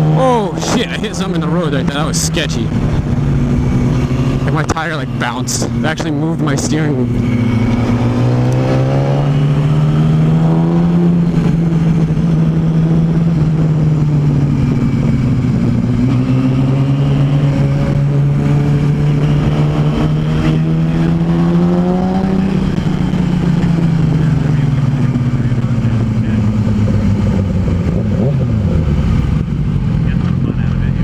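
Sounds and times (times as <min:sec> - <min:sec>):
road noise: 0:00.0 - 0:31.0
vehicle engine cruising: 0:00.0 - 0:31.0.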